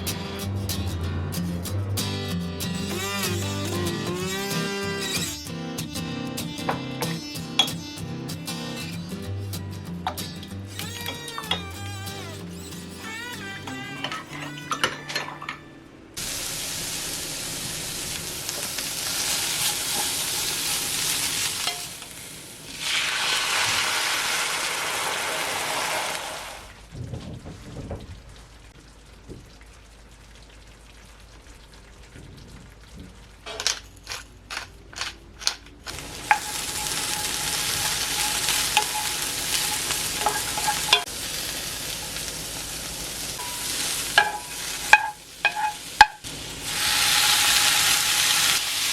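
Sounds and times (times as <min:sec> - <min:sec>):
food sizzling in a frying pan: 0:16.2 - 0:26.8, 0:35.9 - 0:48.9.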